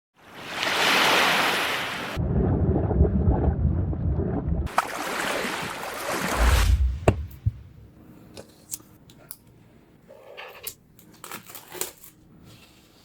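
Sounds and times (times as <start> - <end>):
rushing surf: 6.3 - 7.3
wind whooshing: 6.4 - 7.8
low churning rumble: 6.4 - 8.0.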